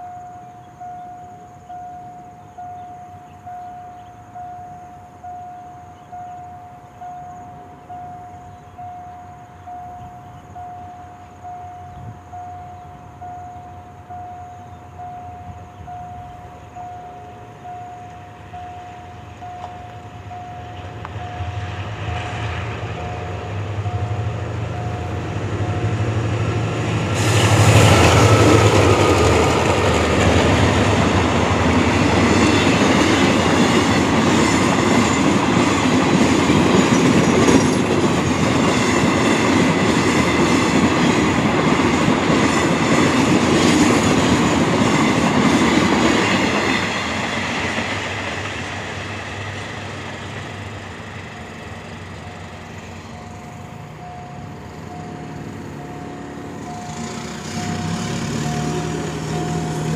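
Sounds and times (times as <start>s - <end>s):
level crossing warning signal: 0.0s - 47.9s, 49.9s - 59.9s
locomotive engine rumble: 7.0s - 59.9s
train wheels clickety-clack: 18.0s - 52.9s, 54.0s - 59.9s.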